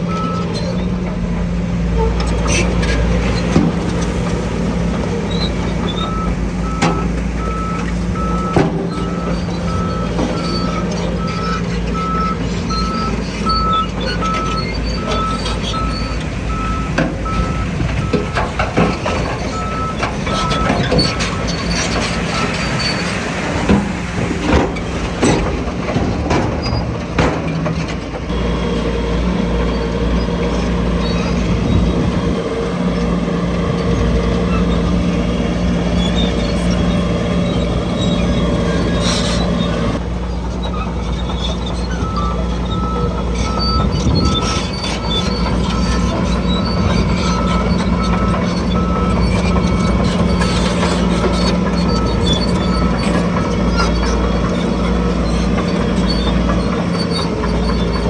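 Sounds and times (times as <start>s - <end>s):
diesel machinery engines running: 0.0s - 58.0s
sharp knocks and clatters: 17.8s - 28.3s.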